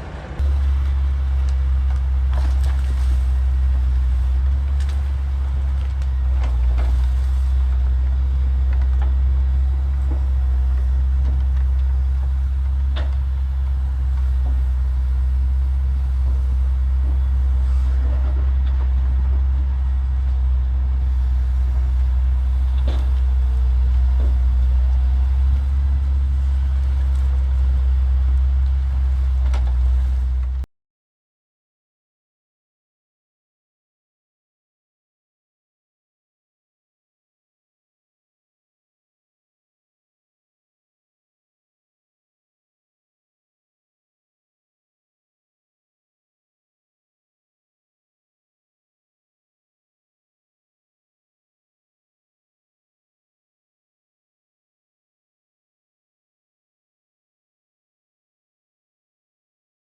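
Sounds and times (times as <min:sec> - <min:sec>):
heavy diesel engine rumbling: 0:00.0 - 0:30.7.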